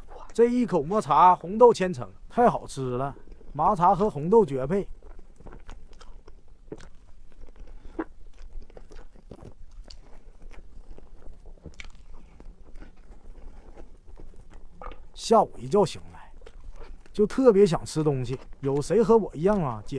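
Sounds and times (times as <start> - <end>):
wet mouth chewing clicks: 4.9 - 15.2, 16.0 - 17.2, 17.9 - 19.9.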